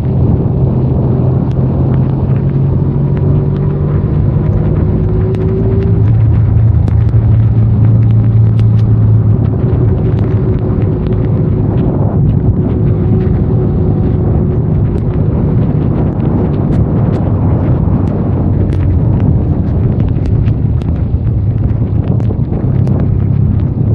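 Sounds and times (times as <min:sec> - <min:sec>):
motorcycle engine running: 0:00.0 - 0:23.9
rain and wind noise: 0:00.0 - 0:23.9
raindrops ticking on microphone: 0:00.0 - 0:23.9.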